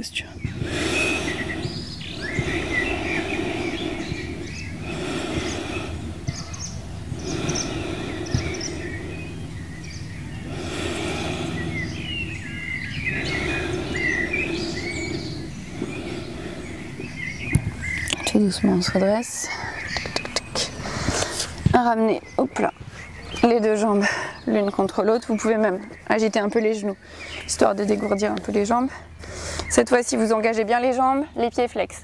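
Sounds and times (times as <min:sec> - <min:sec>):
rushing background noise: 0:00.0 - 0:31.5
small birds chirping and singing: 0:00.0 - 0:32.0.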